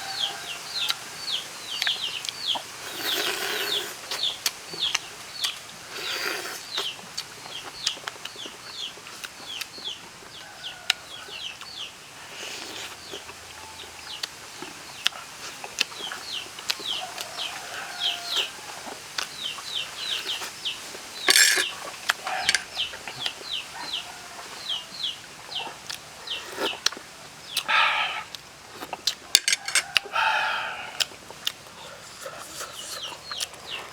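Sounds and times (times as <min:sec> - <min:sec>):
chickens peeping: 0:00.0 - 0:26.8.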